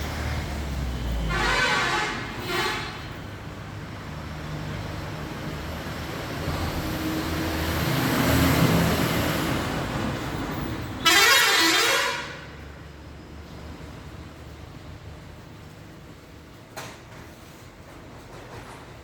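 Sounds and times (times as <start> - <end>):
loud harsh horn toot: 1.2 - 3.2, 11.0 - 12.6
vehicle engine passing by: 3.8 - 10.7.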